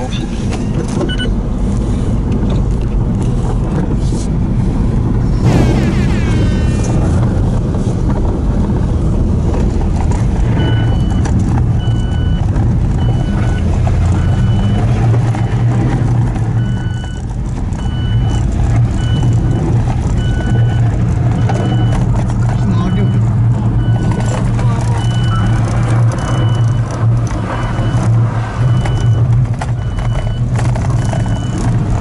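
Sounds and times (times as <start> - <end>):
truck engine running: 1.4 - 32.0
repeating electronic beep: 5.4 - 7.0.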